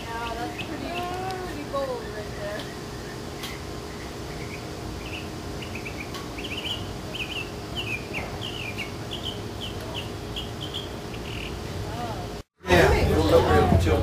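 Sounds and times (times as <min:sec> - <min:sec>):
songbird chirping: 0:00.0 - 0:11.7
steady low hum: 0:00.0 - 0:14.0.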